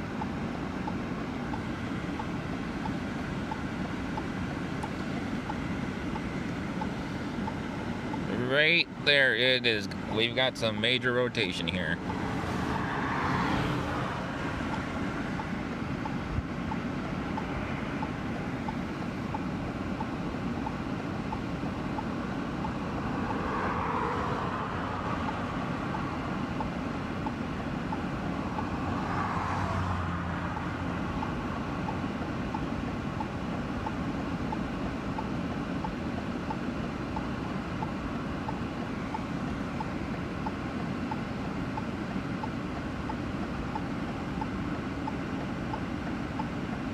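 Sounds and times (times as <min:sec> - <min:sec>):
vehicle noise: 0:00.0 - 0:46.9.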